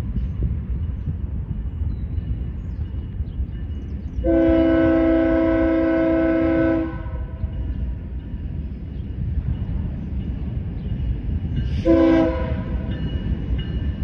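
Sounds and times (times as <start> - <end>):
diesel locomotive rumble: 0.0 - 14.0
locomotive air horn blast: 4.2 - 7.4, 11.8 - 12.9.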